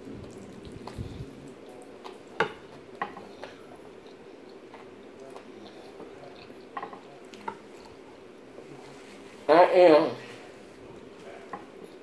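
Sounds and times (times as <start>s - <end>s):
wet chewing mouth sounds: 0.0s - 8.1s
low fan hum: 0.0s - 12.0s.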